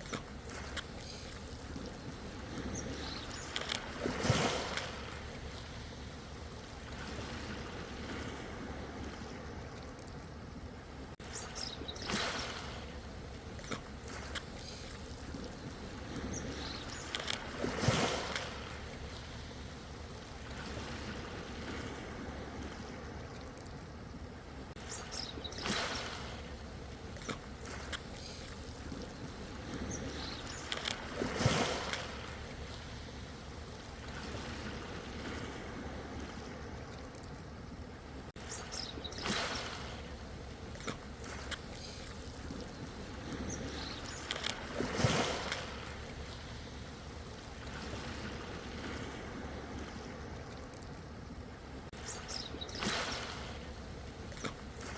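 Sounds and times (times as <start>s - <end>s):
ocean waves washing in: 0.0s - 9.8s, 10.6s - 37.0s, 37.6s - 54.9s.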